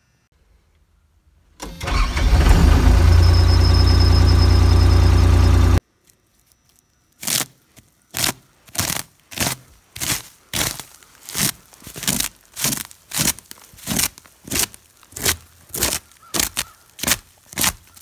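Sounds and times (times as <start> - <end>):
engine running loudly: 1.8 - 5.8
crunching footsteps: 5.9 - 18.0.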